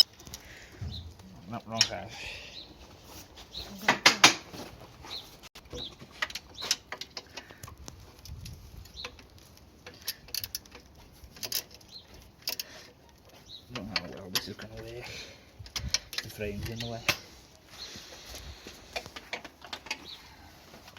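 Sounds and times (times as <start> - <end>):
tools and metal parts clicking: 0.0 - 0.6, 5.7 - 17.3, 18.9 - 20.2
birds chirping: 0.0 - 7.7, 8.8 - 10.3, 11.0 - 19.2, 19.8 - 20.9.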